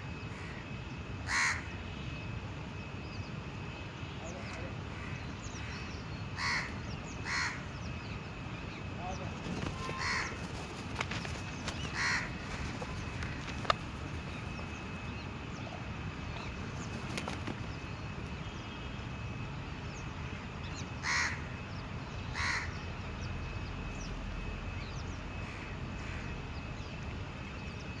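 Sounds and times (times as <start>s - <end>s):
crows cawing: 1.2s - 1.8s, 4.4s - 7.7s, 9.5s - 14.9s, 21.0s - 21.6s, 22.3s - 22.8s, 25.4s - 26.4s.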